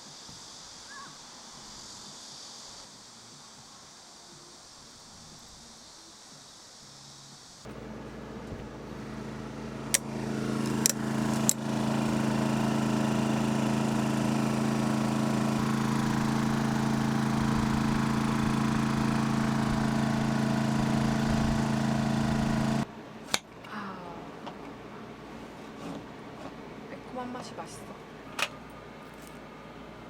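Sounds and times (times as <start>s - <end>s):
motor humming: 7.7s - 23.4s.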